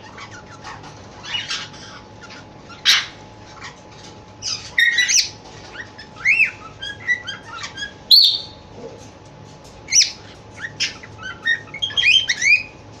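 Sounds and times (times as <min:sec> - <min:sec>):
cockatiel chirping and whistling: 0:04.4 - 0:08.6, 0:09.9 - 0:12.8.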